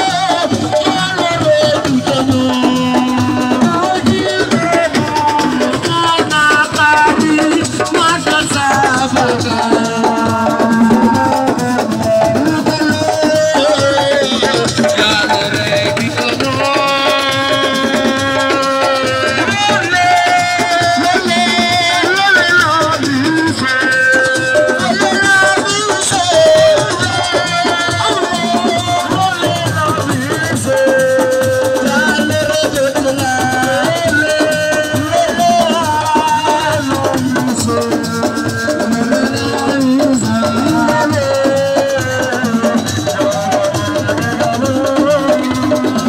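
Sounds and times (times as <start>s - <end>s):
live band dance music: 0.0s - 46.0s
shaker rattling: 0.0s - 46.0s.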